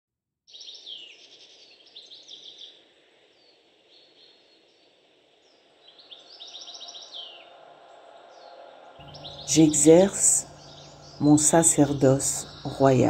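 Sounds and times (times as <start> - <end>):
songbirds chirping: 0.5 - 13.0
soft rushing hiss: 0.8 - 8.2.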